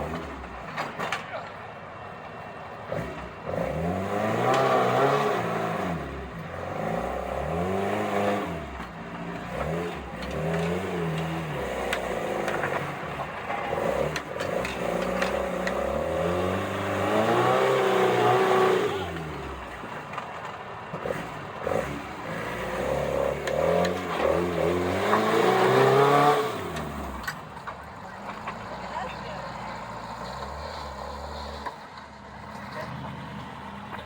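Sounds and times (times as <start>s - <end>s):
off-road vehicle engine revving: 0.0s - 1.3s, 2.7s - 34.0s.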